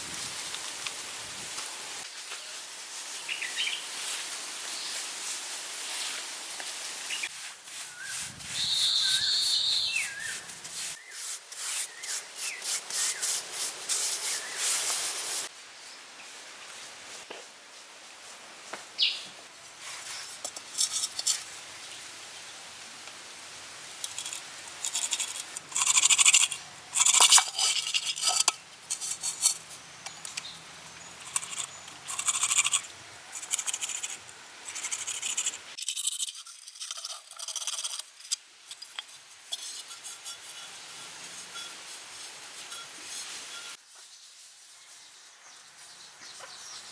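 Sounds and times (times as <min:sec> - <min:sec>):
scraping: 0:20.0 - 0:21.5, 0:24.0 - 0:43.8.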